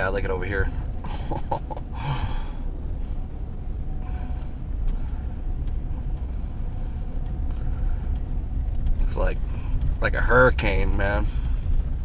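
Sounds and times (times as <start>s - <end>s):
car road noise: 0.0s - 12.0s
wind buffeting microphone: 2.4s - 12.0s.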